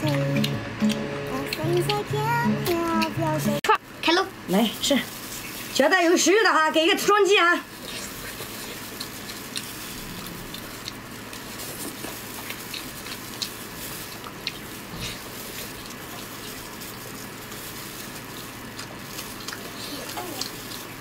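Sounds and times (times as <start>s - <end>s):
chewing with mouth clicks: 0.0s - 3.2s, 7.7s - 21.0s.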